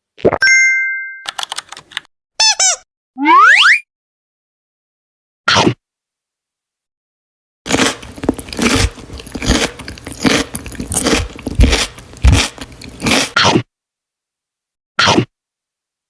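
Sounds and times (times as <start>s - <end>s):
person chewing crunchy food: 7.7s - 13.6s.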